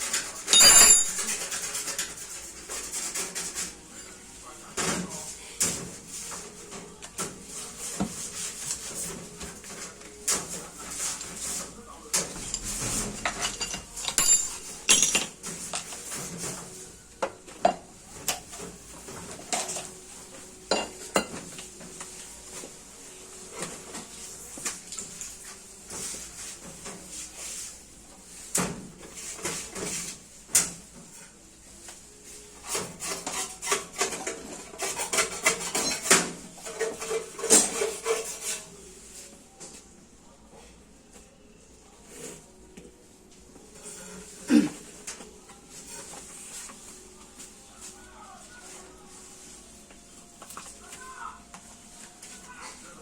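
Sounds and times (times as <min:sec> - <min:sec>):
metal tools clinking and scraping: 0:00.0 - 0:04.2, 0:10.3 - 0:16.6, 0:32.7 - 0:38.7.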